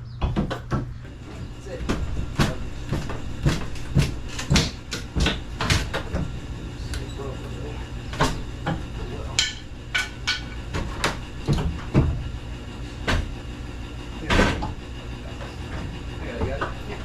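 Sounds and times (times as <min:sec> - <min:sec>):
steady low hum: 0:00.0 - 0:17.0
hand tools striking metal: 0:09.4 - 0:10.6.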